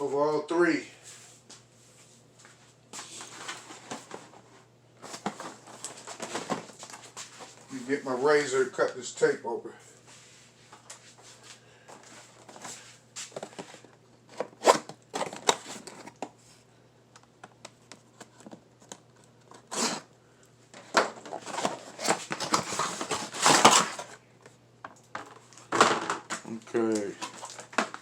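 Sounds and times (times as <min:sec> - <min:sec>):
packaging rustling and crinkling: 0:03.0 - 0:07.9, 0:11.9 - 0:16.4, 0:20.7 - 0:24.2, 0:25.2 - 0:28.0.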